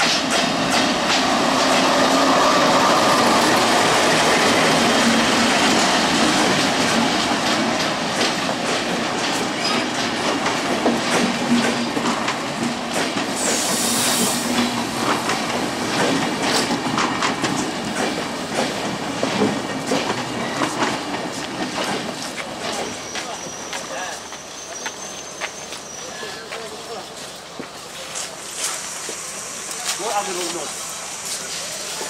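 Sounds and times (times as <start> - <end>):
diesel locomotive engine passing: 0.0 - 32.0
brief high hiss: 13.4 - 14.5.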